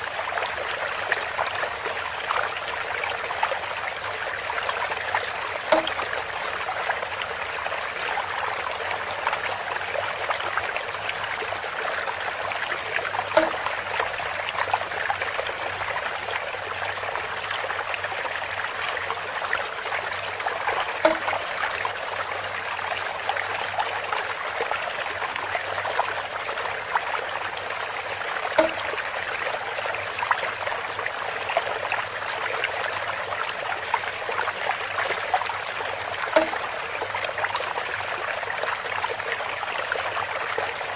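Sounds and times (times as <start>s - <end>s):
water trickling and splashing: 0.0s - 40.9s
hollow bamboo knock: 5.7s - 6.2s, 13.3s - 14.2s, 21.0s - 21.6s, 28.6s - 29.0s, 36.3s - 36.7s.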